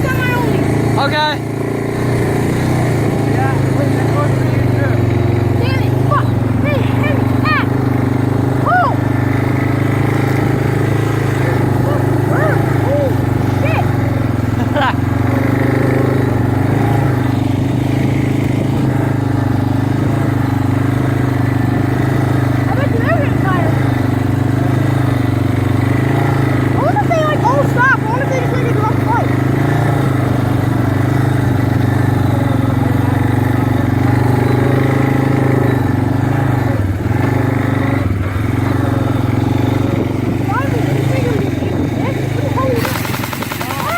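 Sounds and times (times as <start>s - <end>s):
engine droning steadily: 0.0s - 43.9s.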